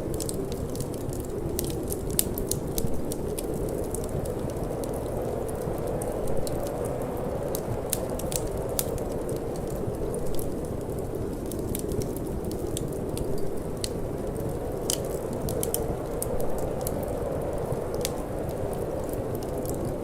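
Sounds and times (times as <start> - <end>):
low rush of wind: 0.0 - 20.0
wood fire crackling and popping: 0.0 - 20.0.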